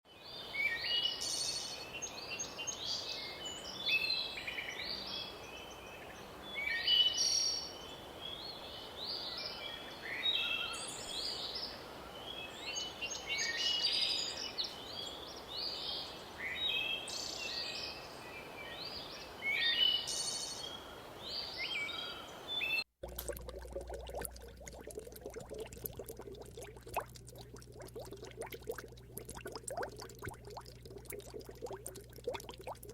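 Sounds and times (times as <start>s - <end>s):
outdoor background hiss: 0.2s - 23.6s.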